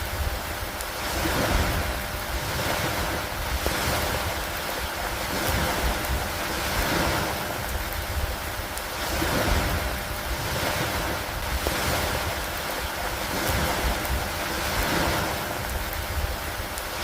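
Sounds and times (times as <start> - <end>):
steady rainfall hiss: 0.0 - 17.0
raindrop ticks: 0.5 - 1.0, 3.5 - 9.0, 11.4 - 14.9, 15.5 - 17.0.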